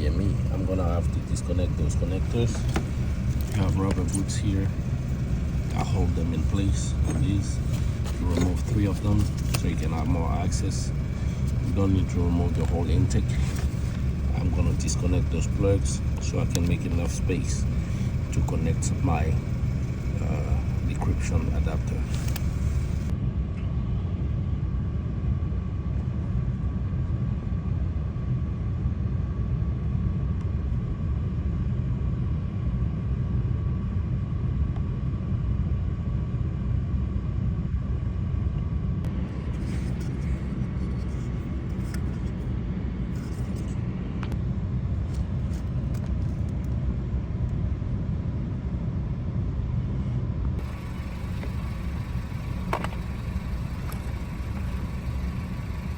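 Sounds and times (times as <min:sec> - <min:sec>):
faint steady tone: 0:00.0 - 0:23.1, 0:50.6 - 0:55.9
low rumble: 0:00.0 - 0:23.1.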